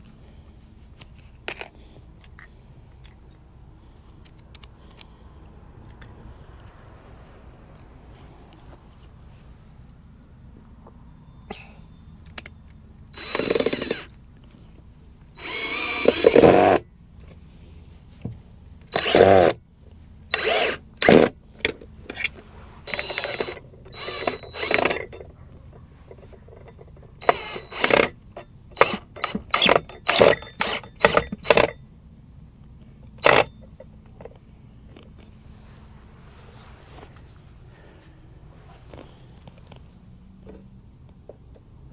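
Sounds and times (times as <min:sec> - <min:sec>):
power drill bursts: 0:13.1 - 0:14.2, 0:15.4 - 0:16.8, 0:18.9 - 0:19.6, 0:20.3 - 0:21.4, 0:22.2 - 0:25.2, 0:27.2 - 0:31.8, 0:33.2 - 0:33.5.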